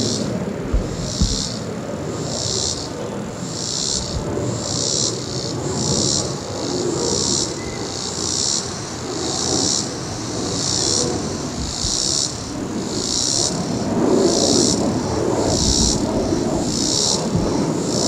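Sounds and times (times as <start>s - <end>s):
insects buzzing in a pulsing drone: 0.0s - 18.0s
jet airliner rumble: 0.0s - 18.0s.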